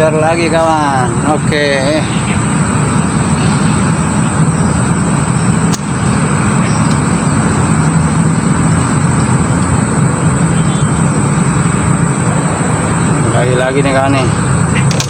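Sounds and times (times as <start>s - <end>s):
motor running low rumble: 0.0s - 15.0s.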